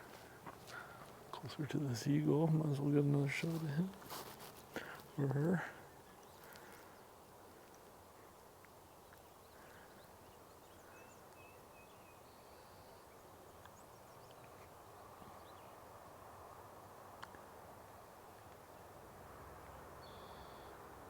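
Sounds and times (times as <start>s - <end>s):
distant bird chirps: 19.7s - 20.8s.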